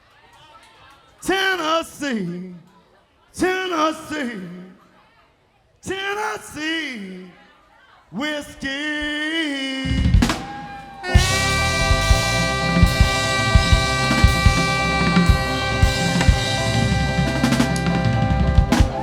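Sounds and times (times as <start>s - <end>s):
drum rolls and cymbal hits: 9.9s - 19.0s
live band sustained chord: 11.1s - 19.0s.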